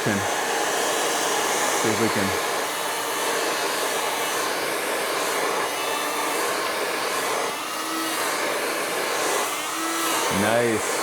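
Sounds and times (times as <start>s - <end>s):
hair dryer running: 0.0s - 11.0s.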